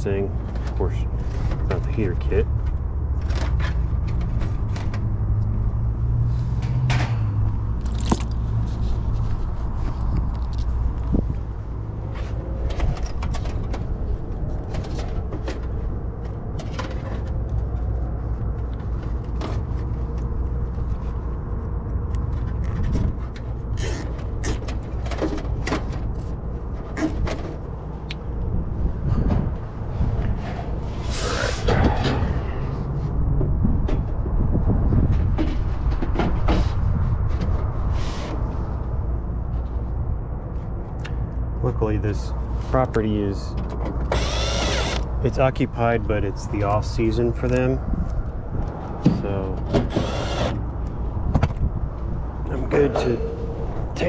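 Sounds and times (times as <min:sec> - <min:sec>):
tools clicking and knocking: 0:07.8 - 0:08.4
parts scraping: 0:43.9 - 0:45.4, 0:49.2 - 0:51.0
steady low hum: 0:44.0 - 0:54.0.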